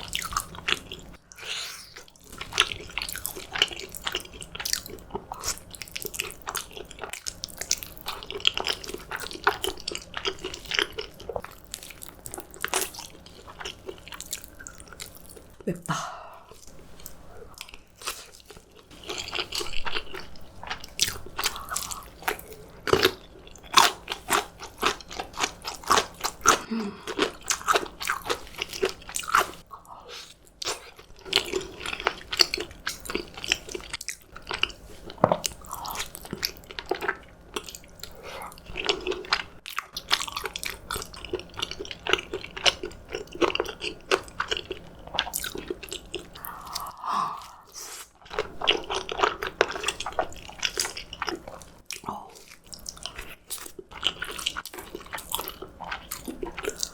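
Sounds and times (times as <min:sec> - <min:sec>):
person chewing crunchy food: 0:00.0 - 0:15.7, 0:16.4 - 0:56.9.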